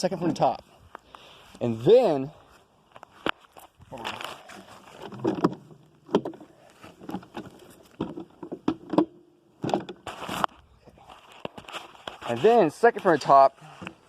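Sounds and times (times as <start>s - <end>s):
clunks and knocks: 5.0s - 10.1s.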